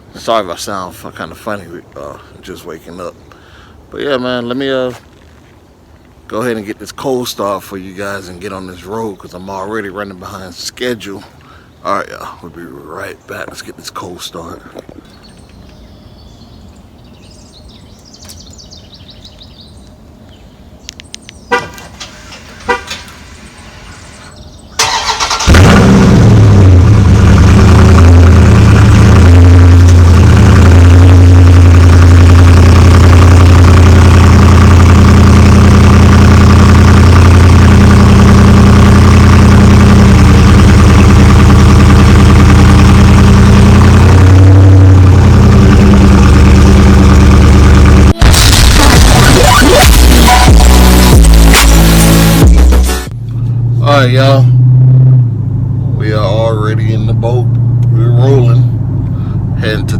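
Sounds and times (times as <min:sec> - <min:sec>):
sharp clicks: 0:20.8 - 0:21.4
car engine starting and idling: 0:21.2 - 0:59.9.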